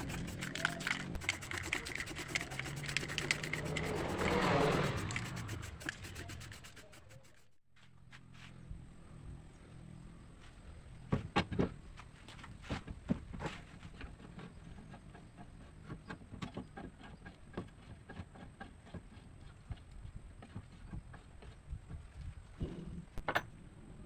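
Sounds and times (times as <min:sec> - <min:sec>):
hard objects clicking and knocking: 0:00.0 - 0:07.2.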